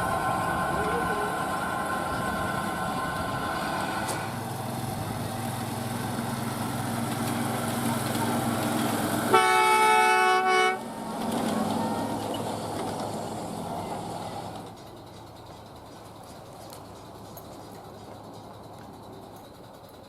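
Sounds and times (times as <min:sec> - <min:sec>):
train running: 0:00.0 - 0:20.0
train horn: 0:09.3 - 0:10.9.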